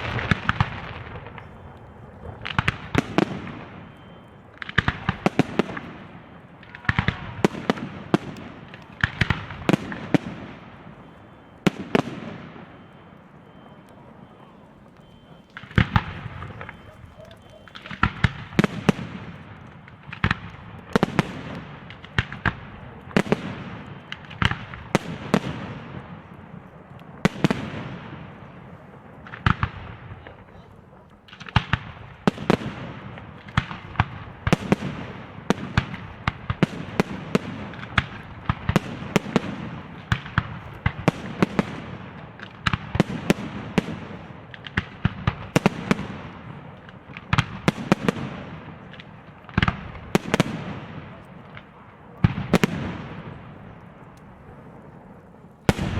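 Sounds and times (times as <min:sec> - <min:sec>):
firework shells bursting: 0:00.0 - 0:25.6
fireworks crackle: 0:00.0 - 0:55.9.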